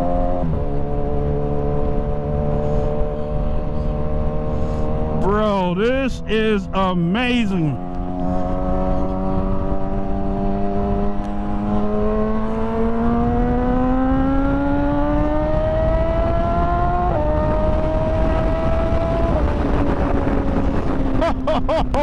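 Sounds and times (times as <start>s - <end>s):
motorcycle engine accelerating: 0.0s - 6.8s, 7.6s - 22.0s
wind and road noise: 0.0s - 22.0s.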